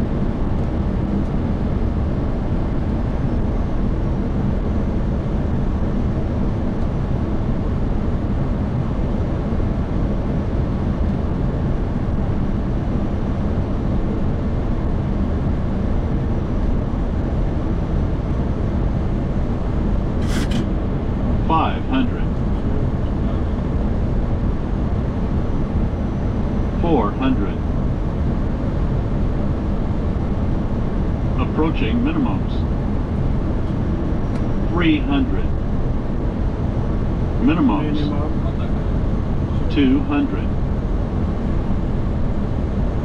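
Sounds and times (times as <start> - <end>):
aircraft engine noise: 0.0 - 43.0.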